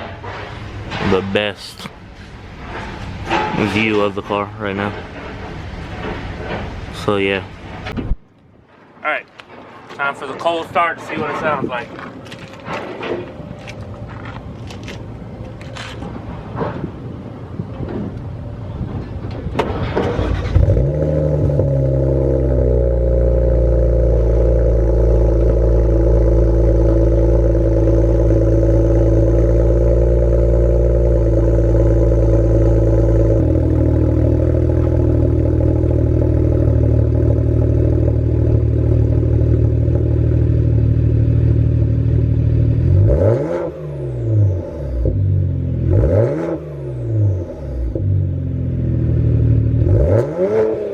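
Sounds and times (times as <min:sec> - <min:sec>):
car engine idling: 0:12.0 - 0:43.1, 0:46.7 - 0:50.0
car engine starting: 0:12.0 - 0:50.9.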